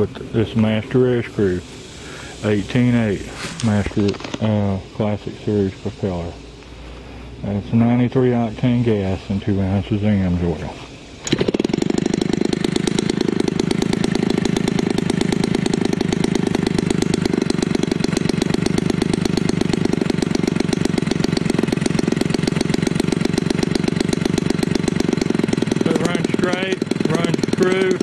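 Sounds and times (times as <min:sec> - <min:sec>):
model airplane engine running: 0:11.2 - 0:28.0.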